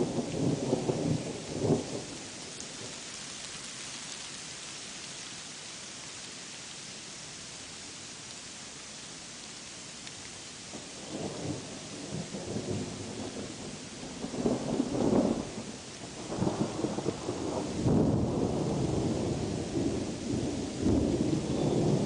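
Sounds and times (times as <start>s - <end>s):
rain hiss: 0.0s - 22.0s
rolling thunder rumble: 11.1s - 22.0s.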